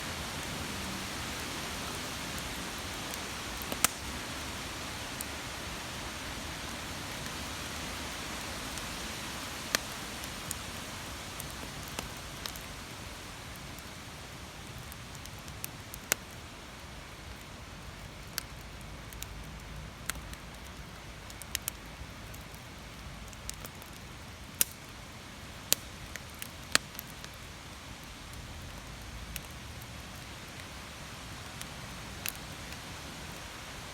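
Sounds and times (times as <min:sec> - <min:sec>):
campfire crackling: 0:00.0 - 0:33.9.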